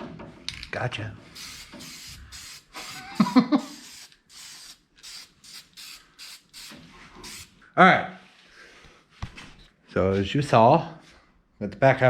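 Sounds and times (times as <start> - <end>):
spray paint hissing: 1.3 - 7.6.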